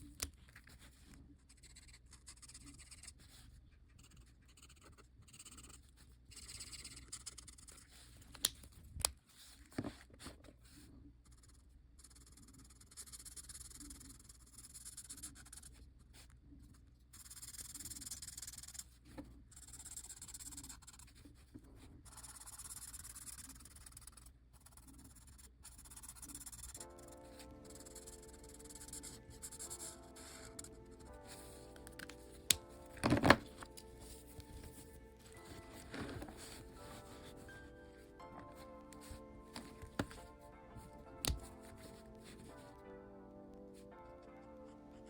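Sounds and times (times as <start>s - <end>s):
pen scratching on paper: 0.0s - 8.5s, 9.3s - 42.8s.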